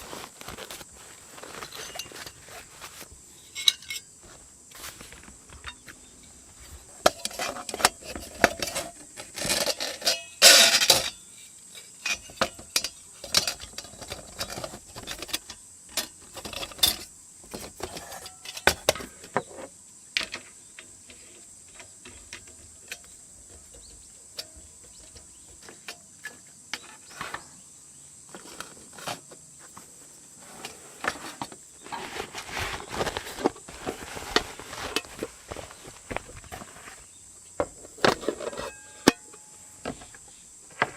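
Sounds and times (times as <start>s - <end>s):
insect chirring: 0.0s - 29.7s, 35.3s - 40.8s
clicks and knocks of handling: 4.8s - 27.5s.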